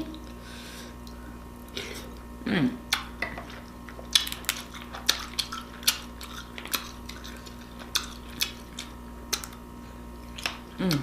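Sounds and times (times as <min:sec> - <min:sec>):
wet eating sounds: 0:02.9 - 0:09.6, 0:10.2 - 0:11.0.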